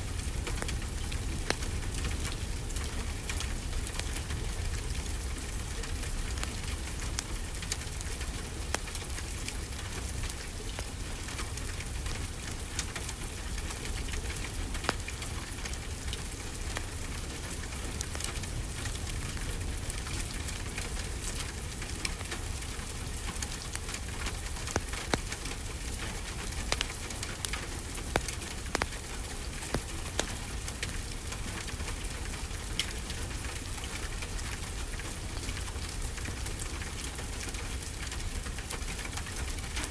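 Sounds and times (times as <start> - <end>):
steady rainfall: 0.0 - 39.9
wood fire crackling: 0.0 - 39.9.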